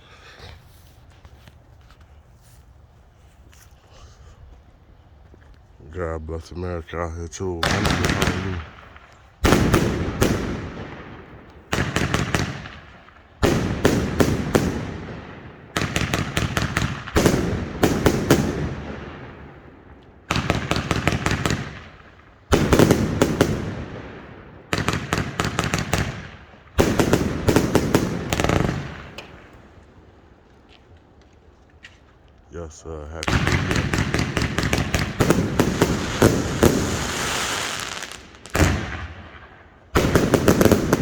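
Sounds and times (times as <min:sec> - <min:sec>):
firework salvos banging: 0:07.0 - 0:30.3, 0:31.7 - 0:41.0.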